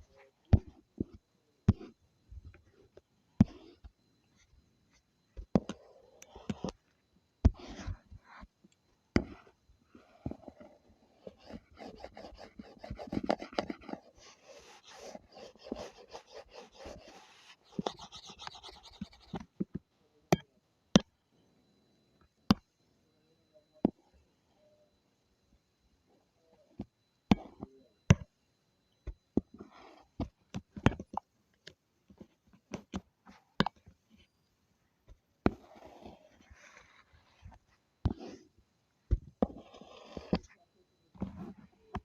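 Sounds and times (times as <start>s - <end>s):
drawing tool scratching: 2.6s - 8.6s, 9.2s - 19.6s, 35.4s - 38.5s, 39.3s - 40.6s.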